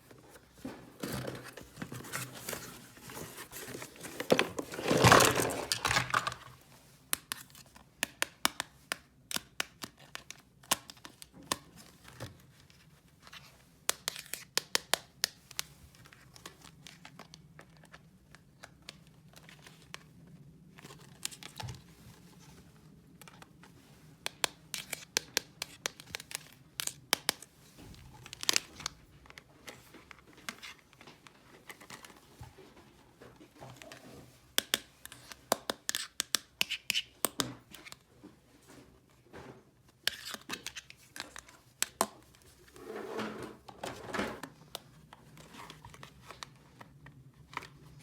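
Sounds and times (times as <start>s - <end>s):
plastic packaging crinkling and tearing: 1.0s - 6.6s.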